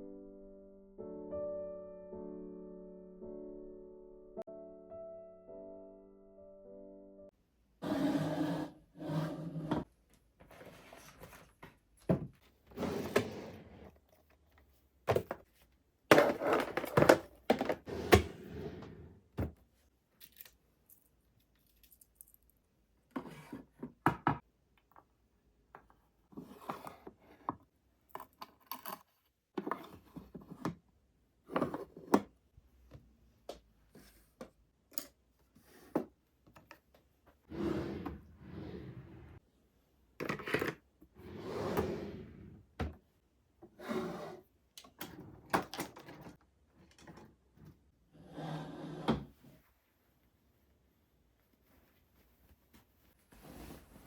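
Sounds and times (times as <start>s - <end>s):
household objects clattering: 16.1s - 19.6s.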